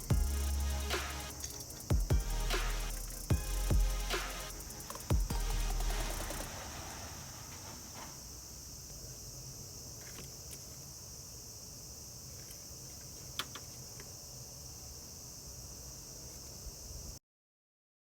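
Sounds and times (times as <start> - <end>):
low hum: 0.0 - 7.4
insect chirring: 0.0 - 17.2.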